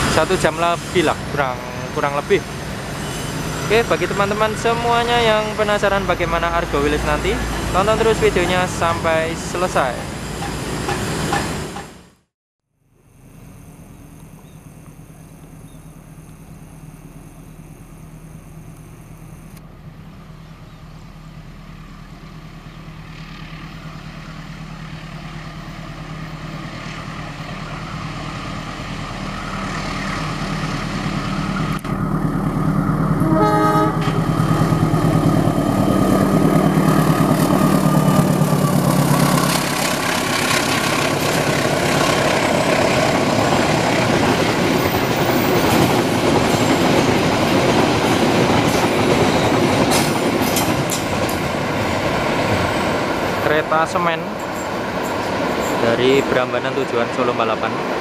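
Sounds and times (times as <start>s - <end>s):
wheels rumbling on rails: 0.0s - 12.2s, 12.9s - 58.0s
locomotive engine drone: 0.0s - 58.0s
train horn toot: 33.2s - 34.3s.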